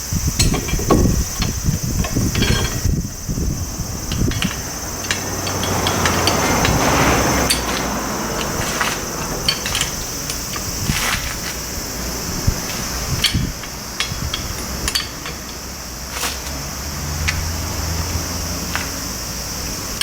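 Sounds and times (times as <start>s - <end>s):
insects chirring: 0.0s - 20.0s
hand tools knocking on metal: 0.4s - 11.6s, 12.7s - 15.8s
soft rushing noise: 0.7s - 18.1s.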